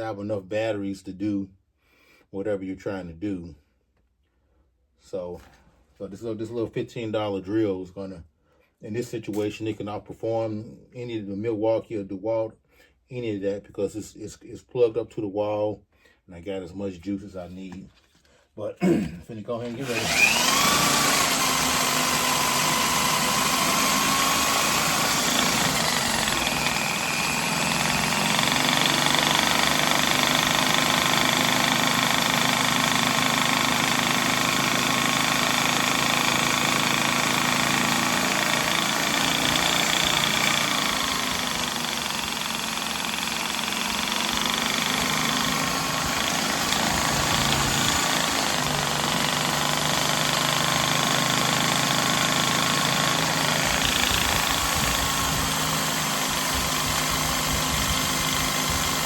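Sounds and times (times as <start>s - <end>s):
electric drill motor whine: 19.7s - 59.0s.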